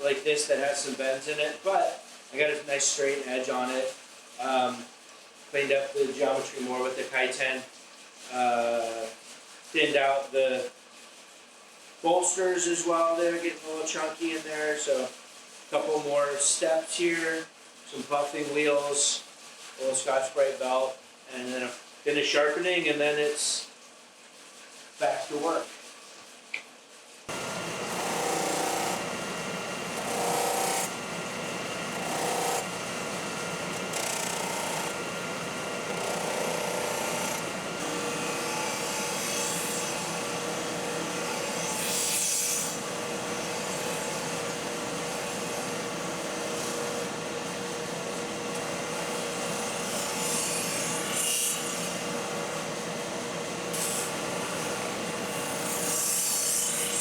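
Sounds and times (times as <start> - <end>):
blade grinding on abrasive belt: 27.3 - 57.0.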